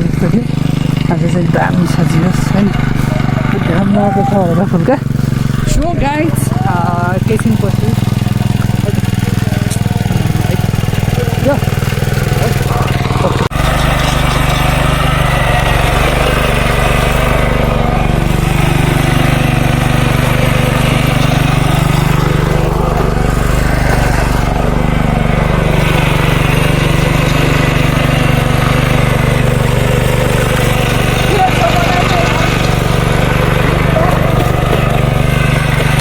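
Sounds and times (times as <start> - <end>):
small tractor engine running: 0.0 - 36.0.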